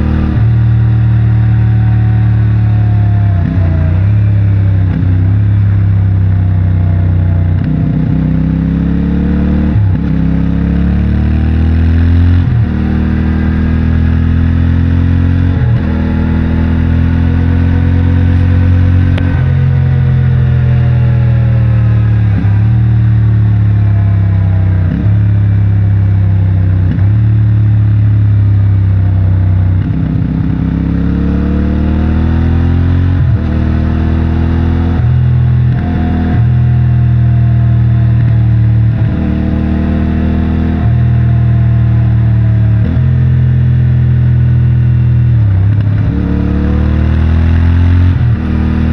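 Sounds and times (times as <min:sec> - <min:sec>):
motorcycle engine revving: 0:00.0 - 0:48.9
motorcycle gear changes: 0:17.3 - 0:22.6.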